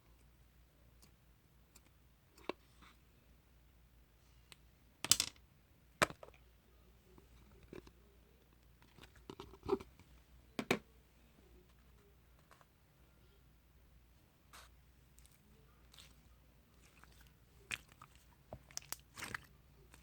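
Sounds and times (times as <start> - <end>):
slime popping and crackling: 16.8 - 20.0.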